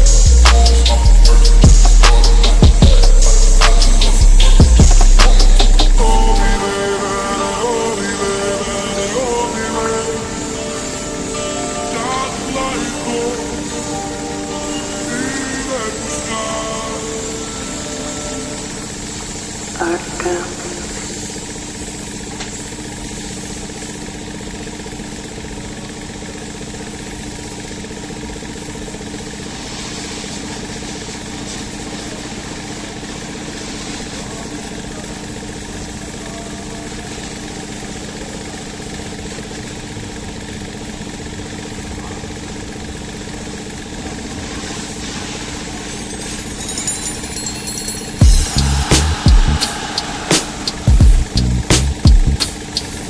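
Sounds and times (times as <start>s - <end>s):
motor humming: 0.0s - 33.6s.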